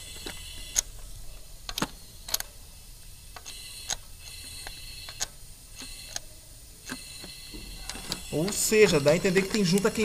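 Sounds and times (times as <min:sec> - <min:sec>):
tools clicking and ticking: 0:01.6 - 0:02.6, 0:03.3 - 0:10.0.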